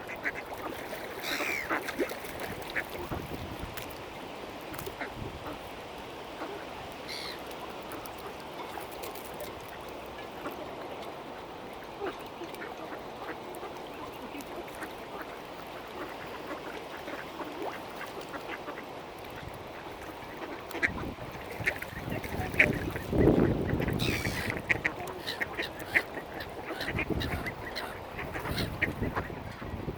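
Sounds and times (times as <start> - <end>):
ducks quacking: 0.0 - 3.2, 20.4 - 29.6
outdoor background noise: 0.0 - 29.9.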